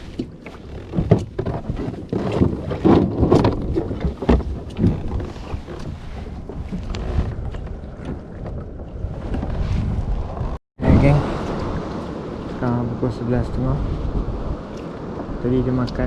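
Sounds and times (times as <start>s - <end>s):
water splashing against kayak: 0.0s - 12.8s
wind buffeting microphone: 0.0s - 16.0s.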